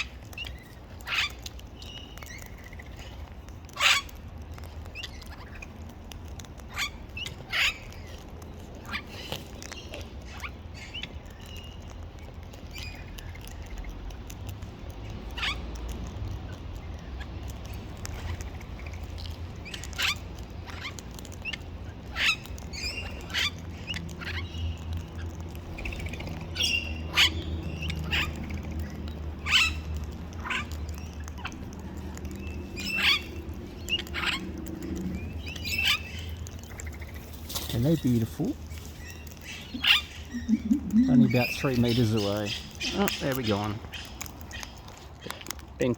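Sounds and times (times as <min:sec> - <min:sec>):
parrots chirping and clicking: 0:00.0 - 0:45.9
steady low rumble: 0:00.0 - 0:45.9.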